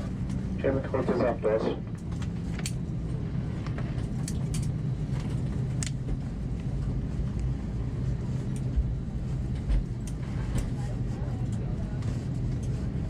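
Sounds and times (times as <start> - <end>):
aircraft engine rumble: 0.0 - 13.0
light clicks in cabin: 1.8 - 3.0, 3.6 - 7.5, 8.4 - 13.0.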